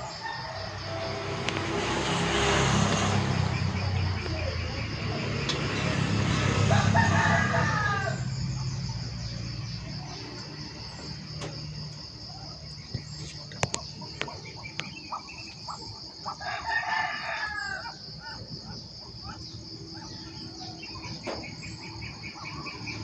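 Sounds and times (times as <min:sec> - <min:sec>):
rooster crowing: 0:00.0 - 0:10.6, 0:16.2 - 0:18.7
insects droning: 0:00.0 - 0:23.0.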